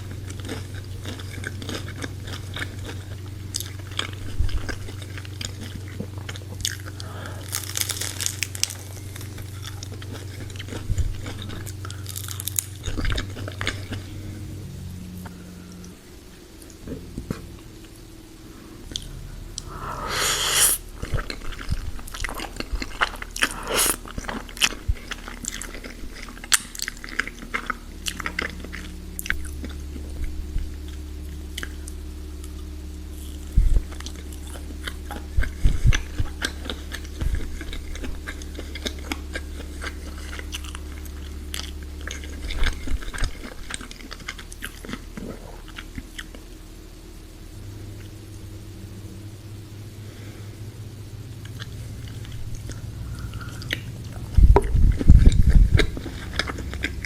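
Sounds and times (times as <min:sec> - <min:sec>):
chewing crunchy food: 0:00.0 - 0:48.3, 0:51.2 - 0:57.0.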